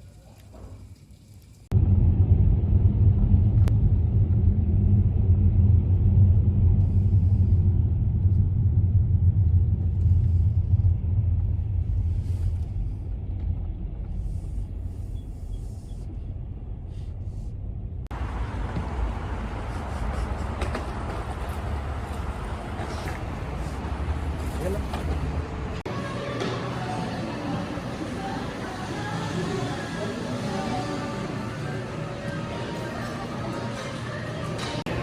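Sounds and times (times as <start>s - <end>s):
loud low rumble: 1.7s - 25.9s.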